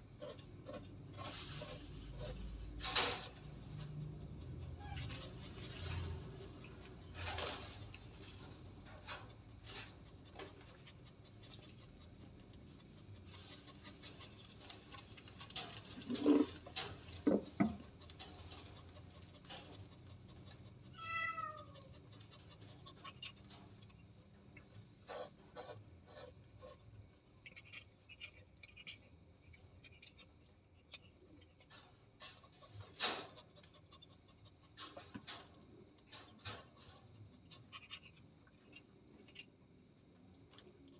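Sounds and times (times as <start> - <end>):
faint rustling: 0.2 - 20.4
cat meowing: 20.9 - 22.0.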